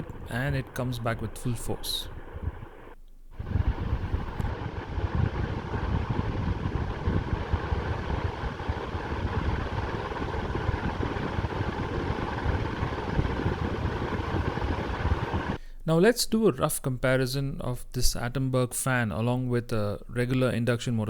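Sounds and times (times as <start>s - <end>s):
low rumble: 0.0s - 15.6s
ceiling fan rushing air: 0.0s - 15.7s
faint steady hum: 0.0s - 21.0s.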